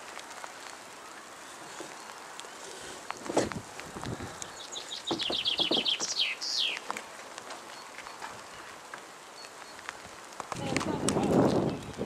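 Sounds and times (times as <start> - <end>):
songbird singing: 0.5 - 12.0
soft knocks: 5.1 - 6.1.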